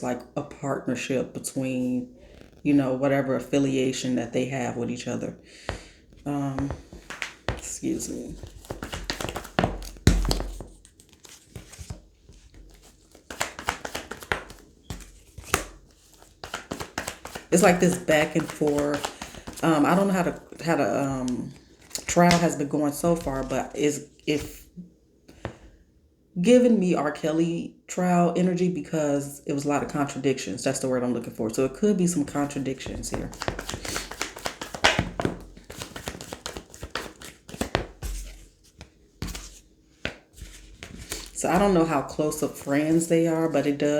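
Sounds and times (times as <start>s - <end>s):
cards clicking and rustling: 6.6s - 20.6s, 21.2s - 22.5s, 32.2s - 43.1s.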